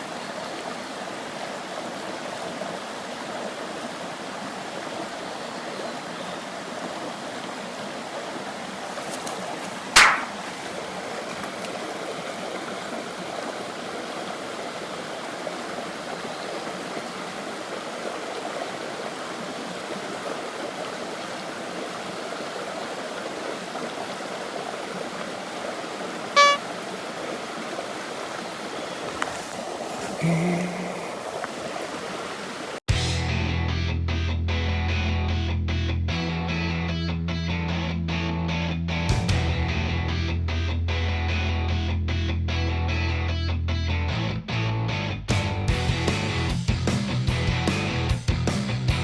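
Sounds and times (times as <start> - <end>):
stream water running: 0.0 - 32.9
sharp click: 9.1 - 10.5
short horn-like beep: 26.4 - 26.7.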